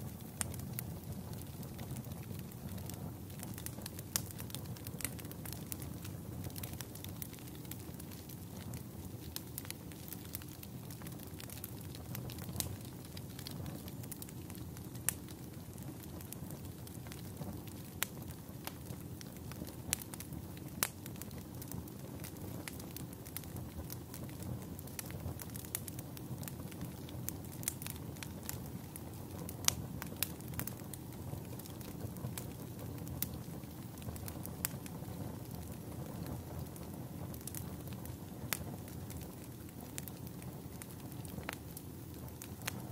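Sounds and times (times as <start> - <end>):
campfire burning: 0.0 - 42.9
wood crackling and popping: 0.0 - 42.9.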